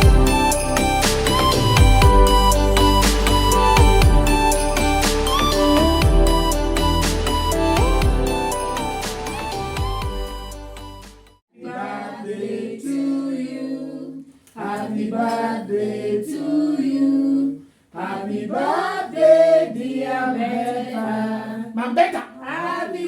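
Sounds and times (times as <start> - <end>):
background music: 0.0 - 11.4
group singing unaccompanied: 11.5 - 23.0.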